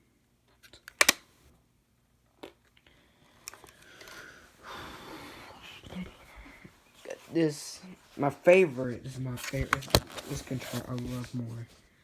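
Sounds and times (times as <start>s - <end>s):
plastic clicks: 0.7s - 1.3s, 3.4s - 4.2s
plastic rustling scrape: 6.9s - 11.8s.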